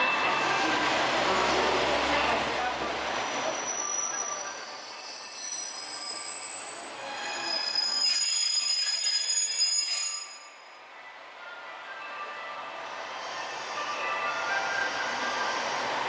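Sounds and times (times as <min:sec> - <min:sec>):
steel wheels squealing on rail: 0:01.4 - 0:10.9, 0:12.8 - 0:16.0.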